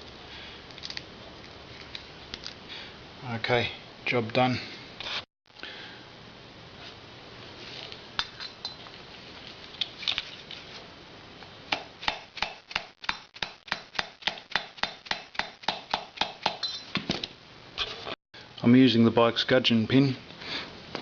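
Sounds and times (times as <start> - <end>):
metal parts clicking: 0.7 - 1.1.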